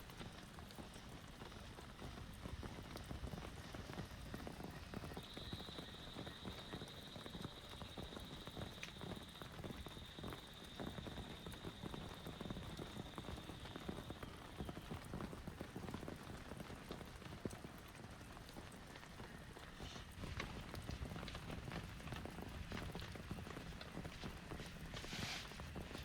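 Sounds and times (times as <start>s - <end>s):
rain pattering: 0.0s - 26.0s
steady high-pitched whine: 3.8s - 14.6s.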